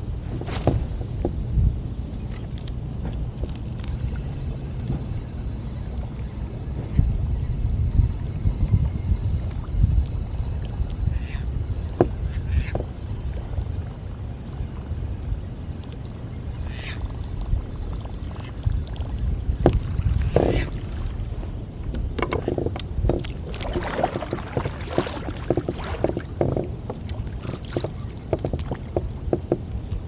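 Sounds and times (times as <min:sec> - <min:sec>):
wind rumble on microphone: 0:00.0 - 0:30.0
water lapping against kayak hull: 0:08.5 - 0:30.0
small splashes and knocks: 0:19.6 - 0:29.6.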